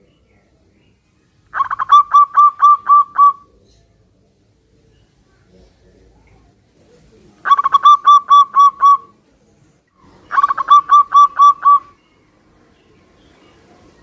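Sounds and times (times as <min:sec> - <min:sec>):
dove cooing: 0:01.5 - 0:03.7, 0:07.4 - 0:09.2, 0:10.1 - 0:12.0.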